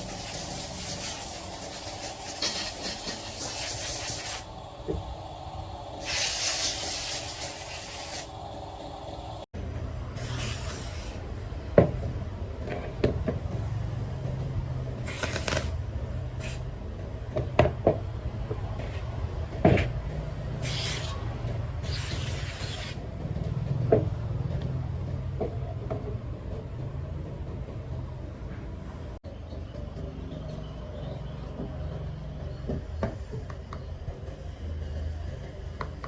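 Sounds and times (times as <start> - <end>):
hissing spray bursts: 0.0 - 4.6, 5.9 - 8.4, 10.2 - 11.2, 16.4 - 16.6, 20.6 - 21.2, 21.8 - 23.0.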